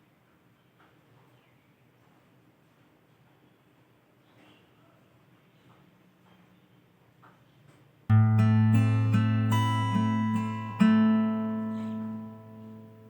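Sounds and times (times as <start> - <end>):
plucked-string melody: 8.1 - 13.0.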